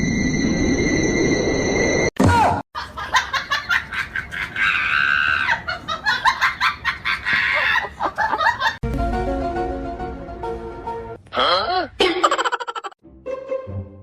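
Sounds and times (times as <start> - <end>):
person laughing hard: 2.8 - 8.8, 12.0 - 13.0
music: 8.8 - 11.2, 13.0 - 14.0.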